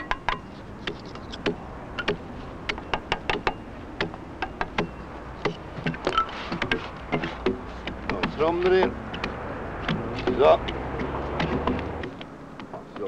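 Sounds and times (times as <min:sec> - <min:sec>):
metallic taps and clicks on saw: 0:00.0 - 0:13.0.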